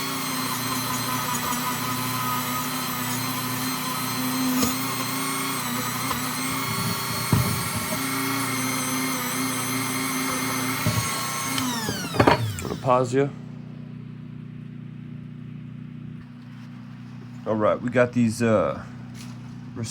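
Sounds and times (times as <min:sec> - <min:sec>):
rotary tool sanding metal: 0:00.0 - 0:13.1.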